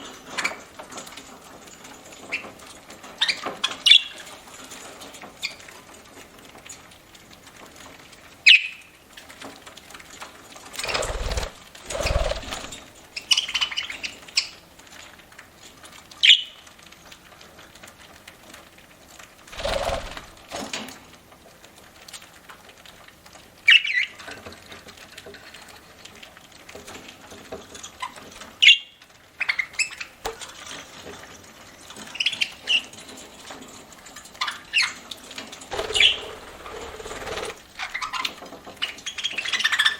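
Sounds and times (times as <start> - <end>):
wings fluttering: 10.6 - 14.5, 19.5 - 20.7, 34.4 - 39.9
budgerigars cracking seed: 35.7 - 38.3
budgerigar chirps: 35.8 - 36.4.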